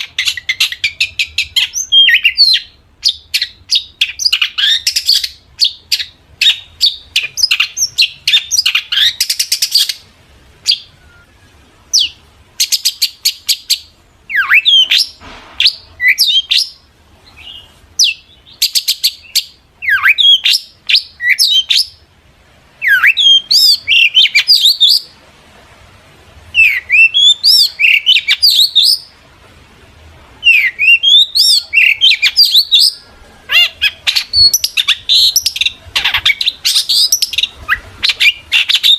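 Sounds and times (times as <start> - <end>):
bird harsh chattering: 30.5 - 38.9.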